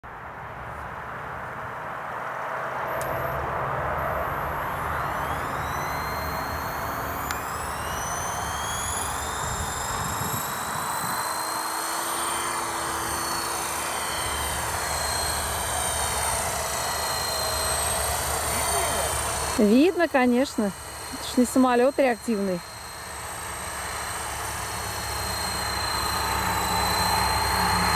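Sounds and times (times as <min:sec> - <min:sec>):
high turbine whine: 0:00.1 - 0:27.9
helicopter engine and rotor noise: 0:02.0 - 0:27.9.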